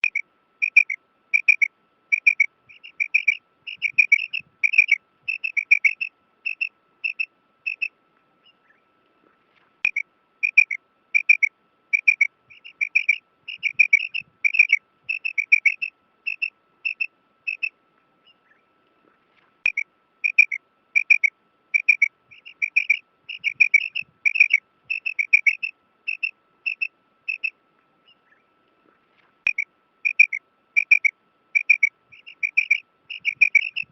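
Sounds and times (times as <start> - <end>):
quail chirping calls: 0.0 - 8.8, 9.8 - 18.6, 19.7 - 28.4, 29.5 - 33.9
faint steady tone humming: 0.0 - 33.9.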